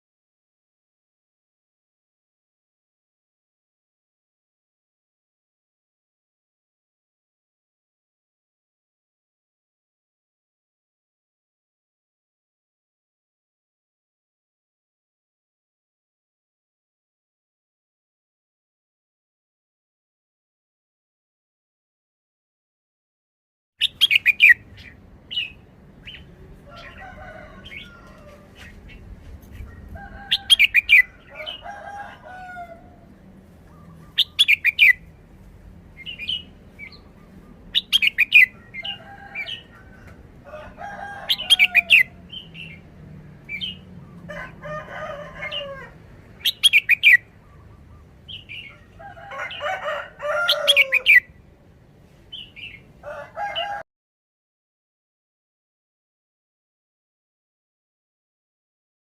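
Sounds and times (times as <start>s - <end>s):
bird singing bright song phrases: 23.8s - 31.6s, 33.6s - 39.8s, 41.4s - 42.9s, 46.4s - 49.0s
quieter lower bird calls: 23.8s - 31.7s, 32.7s - 35.3s, 36.0s - 40.2s, 45.4s - 49.7s.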